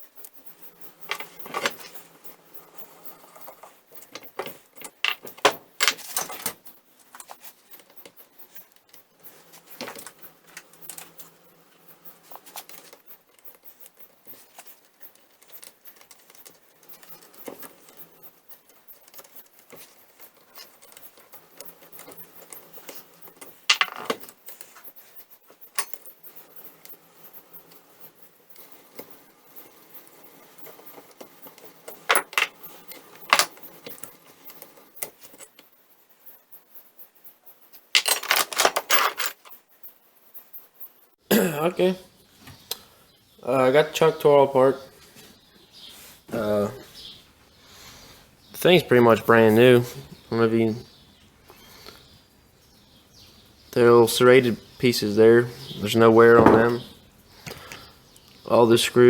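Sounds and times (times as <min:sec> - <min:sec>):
metal parts clinking and clunking: 0:00.0 - 0:27.8, 0:28.5 - 0:35.8, 0:37.7 - 0:39.9.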